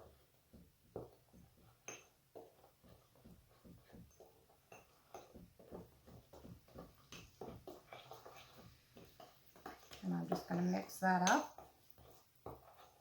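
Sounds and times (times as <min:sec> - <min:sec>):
spoons scraping a small dish: 0:02.5 - 0:10.7, 0:11.4 - 0:13.0.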